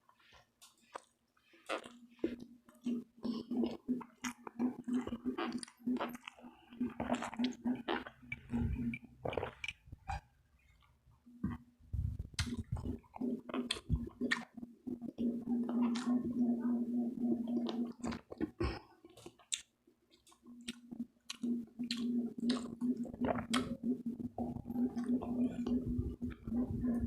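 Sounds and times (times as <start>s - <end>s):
chewing and crunching food: 0.0s - 27.0s
steady low hum: 2.9s - 10.2s, 11.3s - 18.8s, 20.5s - 27.0s.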